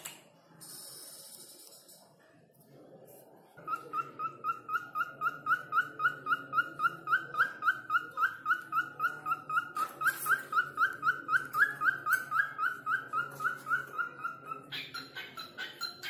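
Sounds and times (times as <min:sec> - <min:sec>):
cockatiel chirping: 0:03.6 - 0:16.0.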